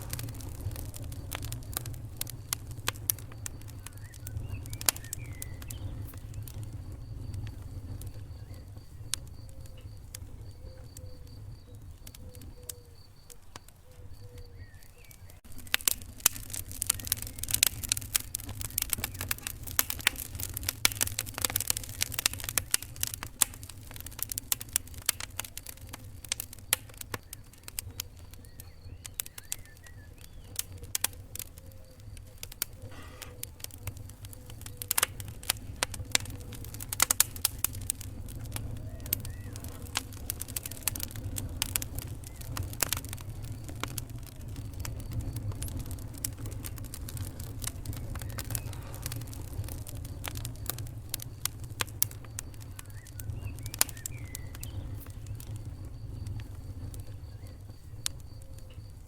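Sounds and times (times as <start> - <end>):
low rumble: 0.0 - 10.6, 35.3 - 52.5
wood fire crackling and popping: 0.0 - 59.0.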